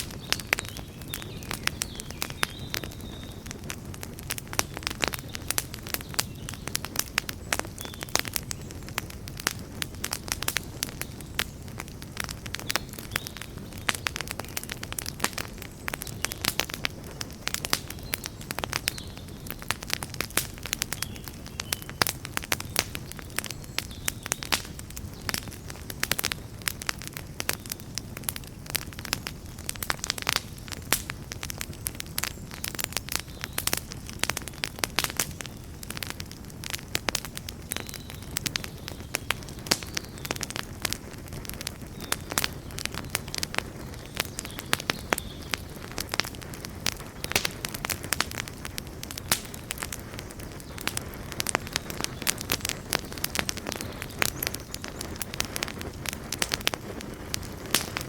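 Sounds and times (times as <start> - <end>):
campfire crackling and popping: 0.0 - 58.0
low rumble of flames: 0.0 - 58.0.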